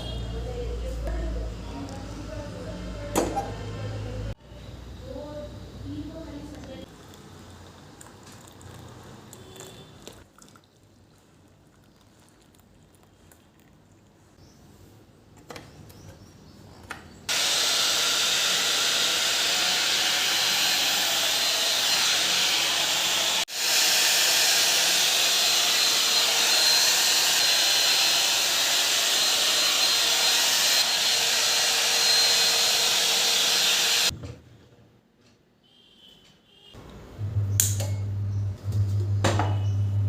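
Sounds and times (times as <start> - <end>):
electric appliance motor whining: 17.3 - 34.1.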